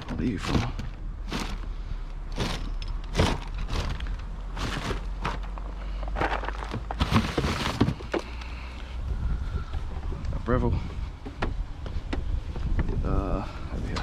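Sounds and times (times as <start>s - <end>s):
rummaging through junk: 0.0s - 8.4s.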